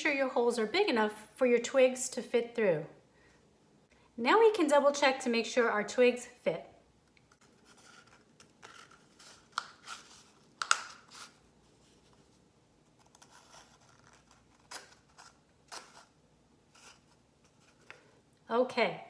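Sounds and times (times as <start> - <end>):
twigs rustling against cardboard: 7.3 - 18.1.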